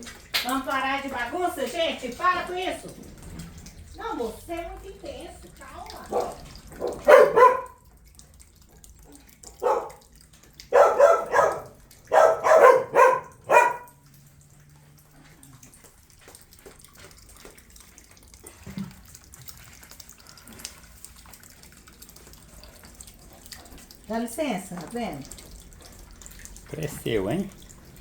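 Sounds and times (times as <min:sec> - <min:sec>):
dog barking: 0:06.0 - 0:07.8, 0:09.5 - 0:10.1, 0:10.7 - 0:14.0.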